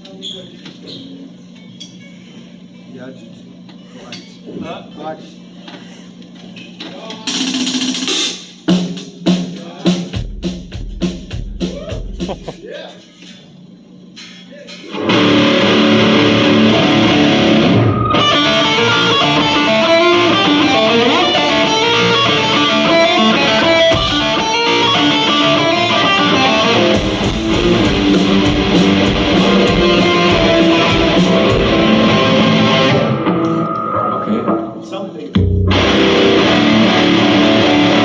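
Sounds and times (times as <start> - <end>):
electric guitar through amplifier: 14.9 - 34.8, 35.4 - 38.0.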